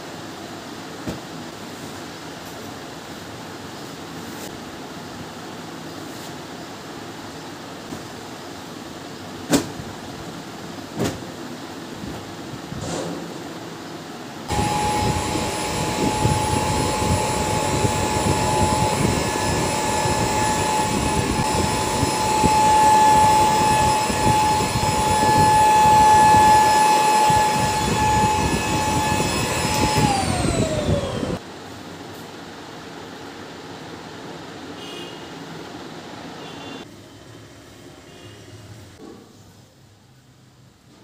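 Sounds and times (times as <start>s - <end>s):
high-speed electric motor whining: 14.5s - 31.4s.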